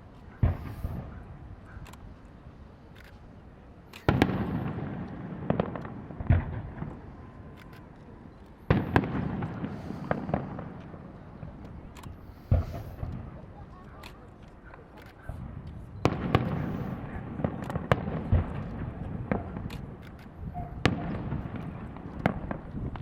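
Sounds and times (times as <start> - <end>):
firework pops and crackles: 0.2 - 2.2, 3.8 - 23.0
firework shells bursting: 3.9 - 13.4, 15.0 - 23.0.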